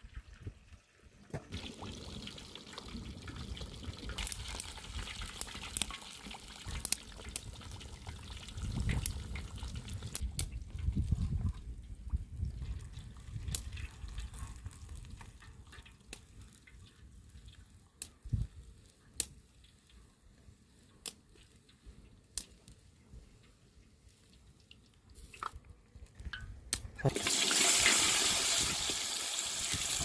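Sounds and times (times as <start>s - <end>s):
water dripping: 0.0s - 22.5s.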